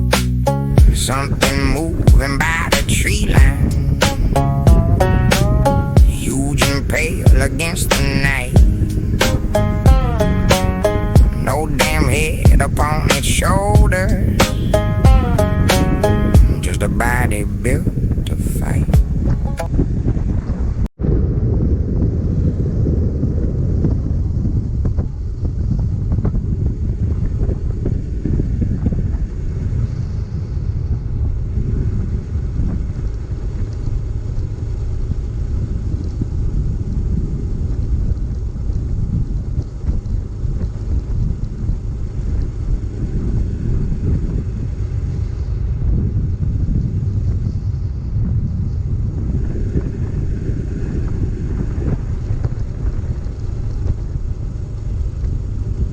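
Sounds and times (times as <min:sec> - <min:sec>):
road noise: 0:00.0 - 0:19.8
wind buffeting microphone: 0:00.8 - 0:55.9.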